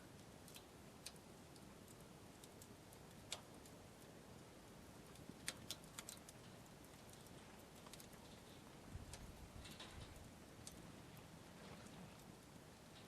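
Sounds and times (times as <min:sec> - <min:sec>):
background hiss: 0:00.0 - 0:13.0
campfire crackling: 0:00.0 - 0:13.0.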